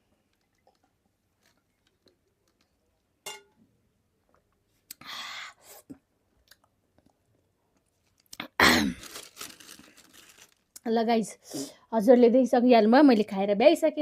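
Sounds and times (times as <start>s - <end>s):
soft mouth clicks eating: 6.4s - 7.2s.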